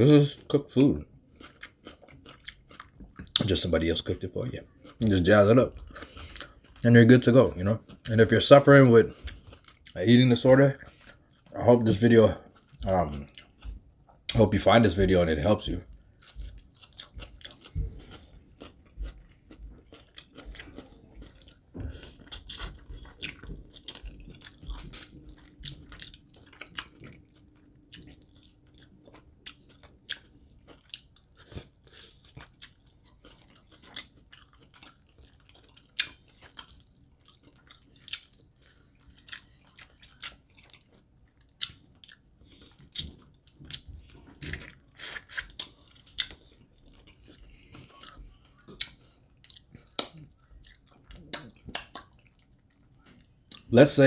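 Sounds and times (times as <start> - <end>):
person chewing food: 0.3 - 3.7, 4.6 - 11.6, 12.2 - 14.4, 15.7 - 53.7.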